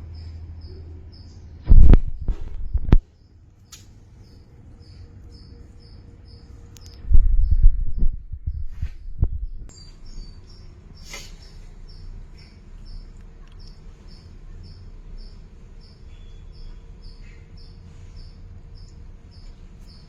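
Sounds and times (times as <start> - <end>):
low thumps and rumble: 1.1 - 3.1, 6.8 - 10.4.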